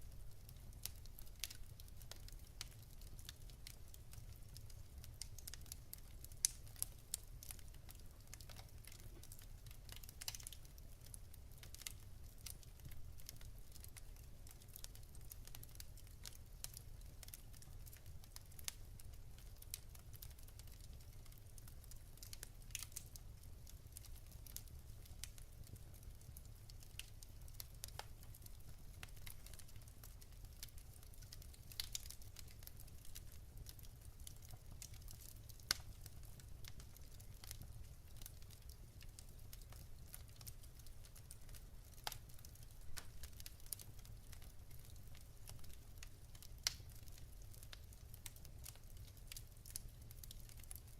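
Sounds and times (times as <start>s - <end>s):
low rumble of fire: 0.0s - 50.9s
wood fire crackling: 0.0s - 50.9s.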